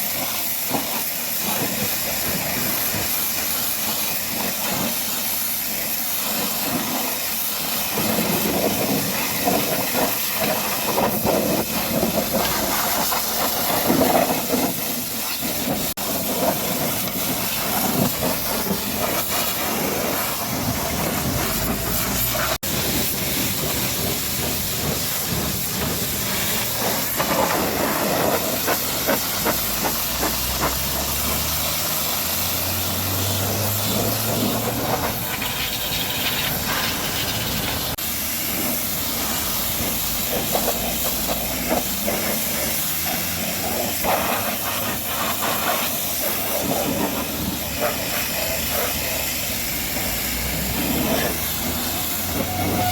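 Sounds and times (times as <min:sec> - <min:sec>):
high-pressure water spray hissing: 0:00.0 - 0:52.9.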